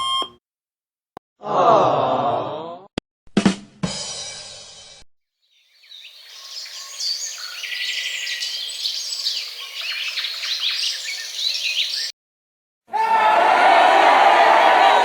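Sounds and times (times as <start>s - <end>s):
songbirds chirping and singing: 5.5s - 12.1s.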